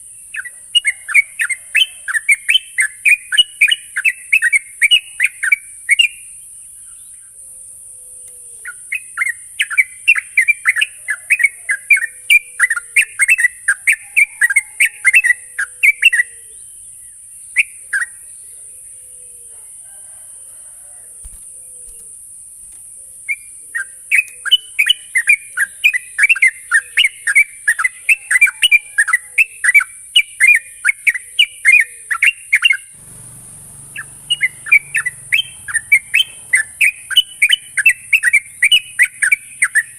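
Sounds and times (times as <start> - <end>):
bird chirping song: 0.0 - 20.2, 22.8 - 39.9
high hiss: 33.0 - 35.7.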